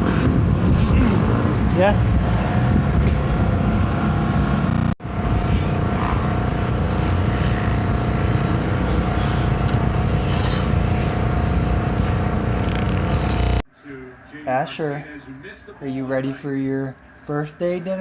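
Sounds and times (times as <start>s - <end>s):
motorcycle engines running: 0.0s - 13.6s.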